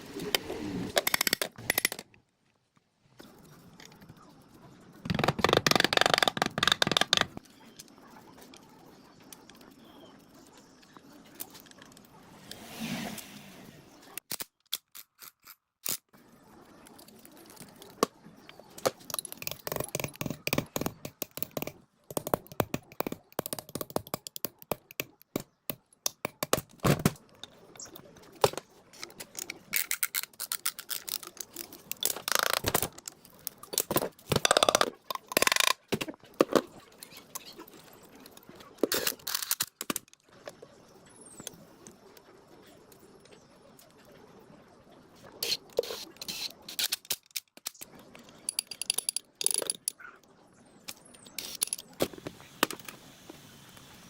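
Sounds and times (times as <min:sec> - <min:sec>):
tools clicking and knocking on metal: 0:18.8 - 0:26.8, 0:48.4 - 0:50.0.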